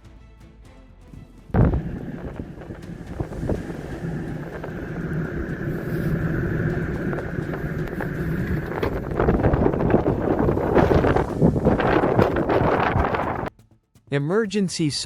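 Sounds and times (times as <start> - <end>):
road noise: 1.6 - 13.5
vehicle engine drone: 1.6 - 13.5
wind buffeting microphone: 1.6 - 13.5.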